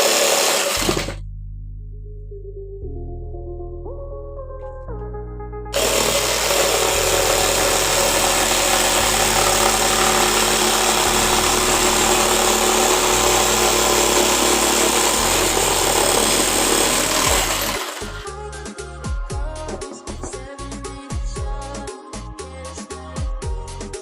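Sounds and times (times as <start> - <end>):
jigsaw running: 0.0 - 1.2, 5.8 - 18.3.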